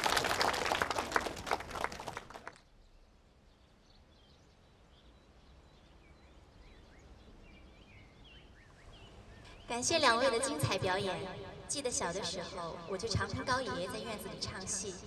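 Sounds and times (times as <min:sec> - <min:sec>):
applause: 0:00.0 - 0:02.6.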